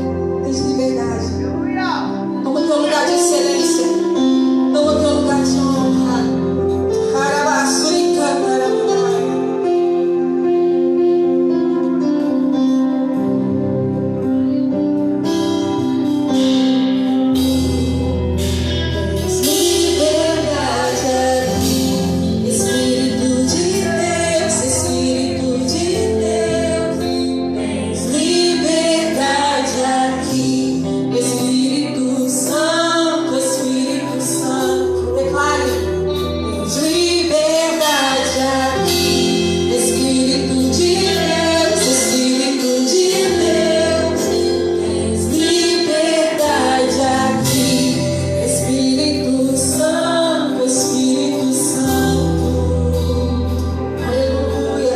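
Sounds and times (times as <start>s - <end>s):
bass: 0.0s - 54.9s
instrumental chords: 0.0s - 54.9s
bass line: 13.2s - 32.4s
person singing: 18.9s - 54.9s.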